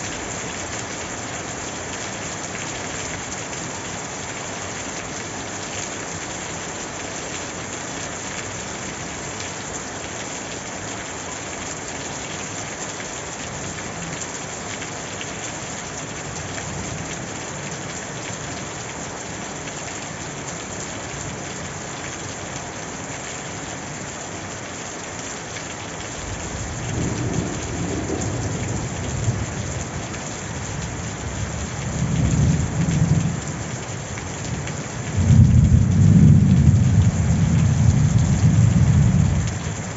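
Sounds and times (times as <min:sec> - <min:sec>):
heavy rain falling: 0:00.0 - 0:39.9
thunder rumbling: 0:26.9 - 0:29.5, 0:35.2 - 0:39.4.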